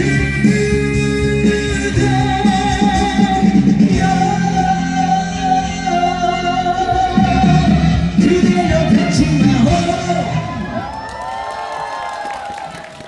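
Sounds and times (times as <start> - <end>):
live band playing: 0.0 - 11.0
man singing long notes: 0.0 - 11.0.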